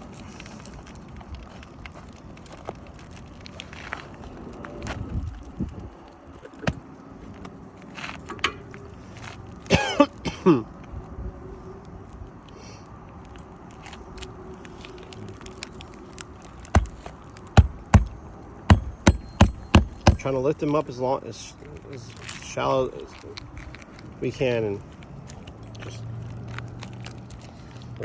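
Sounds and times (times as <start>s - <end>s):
taps and knocks on roof shingles: 16.6s - 20.4s
hard knocks: 16.7s - 20.3s.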